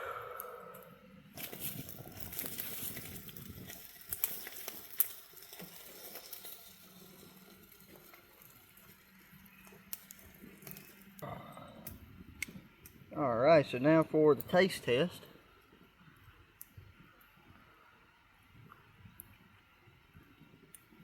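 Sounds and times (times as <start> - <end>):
food pouches crinkling: 1.4 - 7.2.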